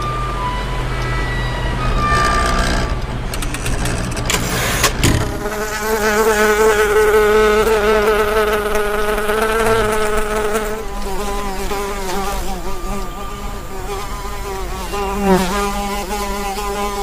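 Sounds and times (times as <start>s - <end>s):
flying insect buzzing: 5.3s - 17.0s.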